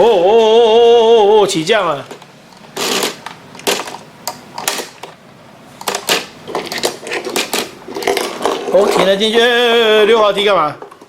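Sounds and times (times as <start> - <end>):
plastic toy clicks and rattles: 2.0 - 5.2, 5.8 - 9.5.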